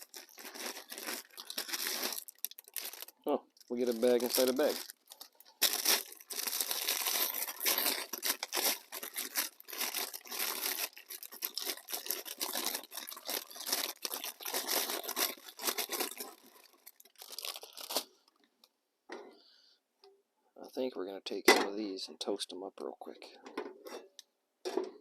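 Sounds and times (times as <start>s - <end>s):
plastic packaging crinkling and tearing: 0.0s - 18.4s.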